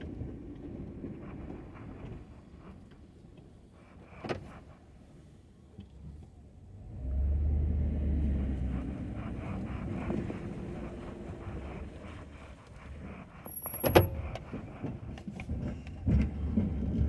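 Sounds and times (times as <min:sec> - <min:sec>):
pickup truck engine revving: 0:06.7 - 0:12.4.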